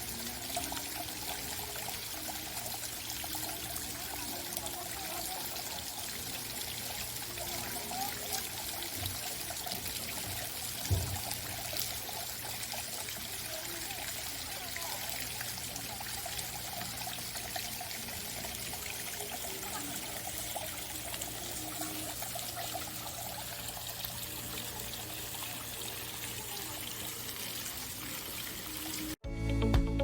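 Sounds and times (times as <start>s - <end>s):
music: 0.0s - 10.8s, 28.6s - 30.0s
water trickling and splashing: 0.0s - 29.2s.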